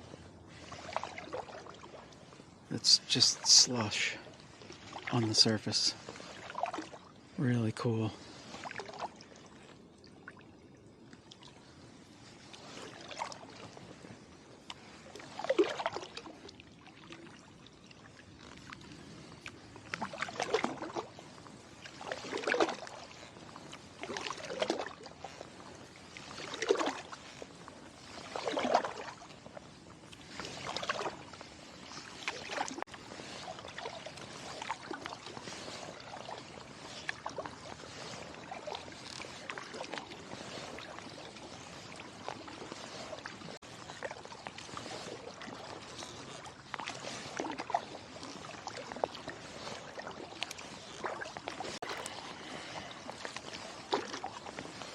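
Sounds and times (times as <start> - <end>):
paddle strokes in water: 0.0 - 54.9
water dripping off paddle: 14.6 - 31.2, 31.8 - 54.9.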